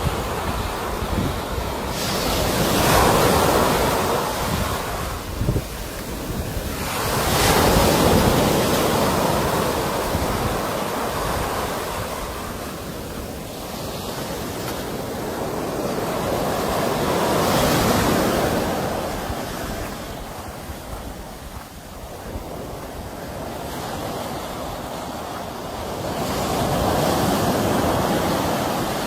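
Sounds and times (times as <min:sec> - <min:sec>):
sea waves breaking on shore: 0:00.0 - 0:29.0
wind buffeting microphone: 0:00.0 - 0:29.0.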